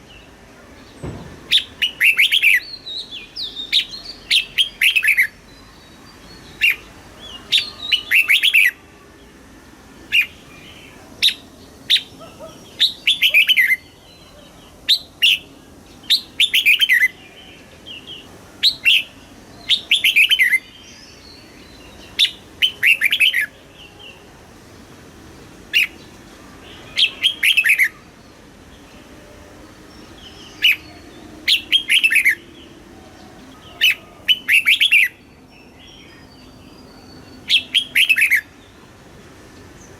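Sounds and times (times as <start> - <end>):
bird singing whistled phrases: 1.1 - 5.4, 26.9 - 28.0, 30.3 - 32.4, 33.6 - 35.3, 36.0 - 38.5.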